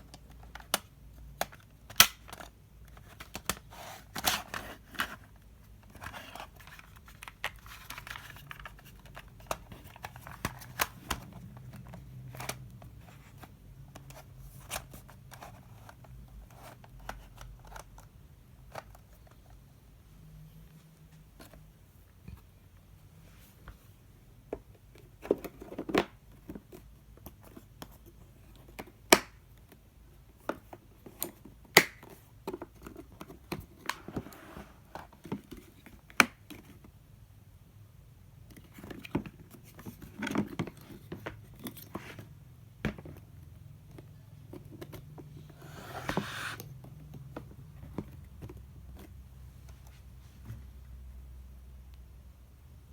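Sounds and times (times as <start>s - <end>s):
handling clicks and knocks: 46.1s - 49.8s.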